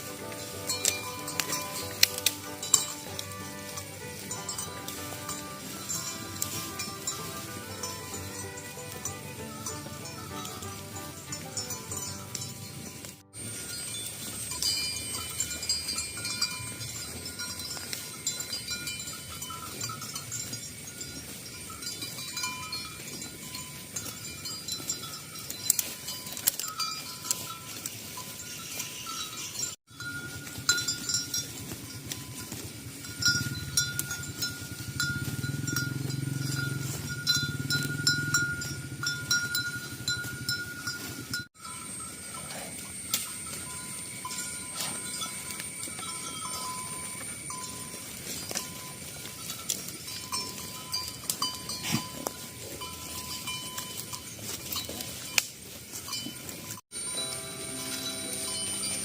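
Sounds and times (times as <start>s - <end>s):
cow bells clinking: 0.0s - 59.0s
cattle mooing: 35.0s - 39.1s.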